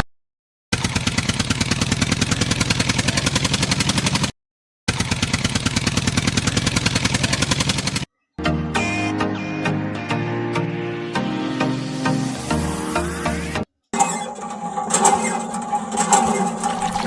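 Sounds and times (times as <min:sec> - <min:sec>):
rapid pulsing engine-like sound: 0:00.7 - 0:04.3, 0:04.9 - 0:08.1.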